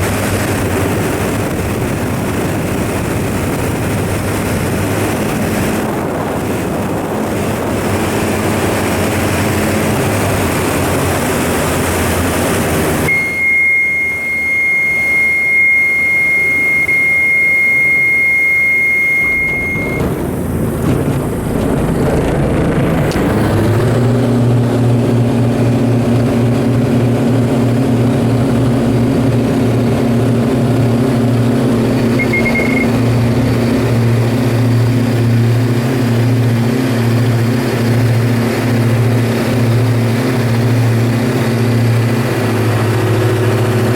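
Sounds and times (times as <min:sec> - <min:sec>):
aircraft engines: 0:00.0 - 0:43.9
brief high beep: 0:13.1 - 0:20.1, 0:32.1 - 0:33.0
steady high warning tone: 0:13.1 - 0:20.2, 0:32.0 - 0:33.2.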